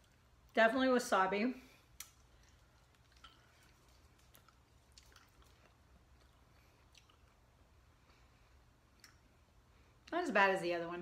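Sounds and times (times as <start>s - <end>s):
soft chewing mouth clicks: 1.9s - 8.2s, 8.9s - 10.2s.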